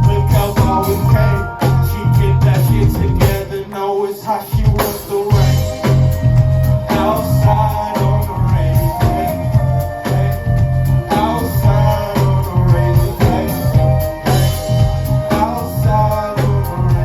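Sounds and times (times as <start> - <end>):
live band playing hip-hop groove: 0.0 - 17.0
person singing: 0.0 - 17.0.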